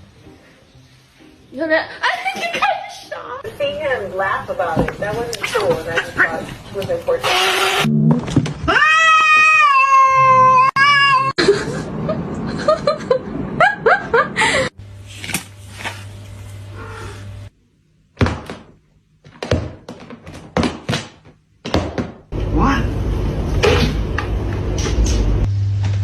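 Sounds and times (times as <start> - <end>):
cat yowling: 8.7 - 11.4
knocks and thuds: 18.2 - 22.3.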